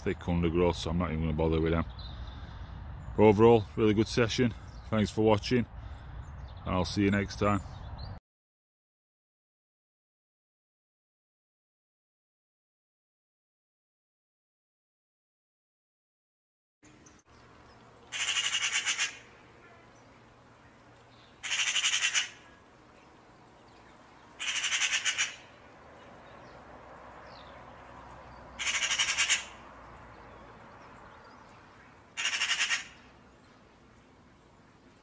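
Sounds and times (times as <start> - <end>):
bird squawking: 18.1 - 20.0, 21.4 - 22.6, 24.4 - 25.6, 28.6 - 29.6, 32.2 - 33.1.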